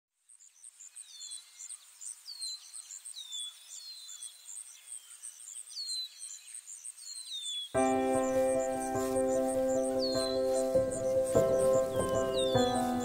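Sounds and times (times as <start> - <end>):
very high bird chirps: 5.0 - 13.0.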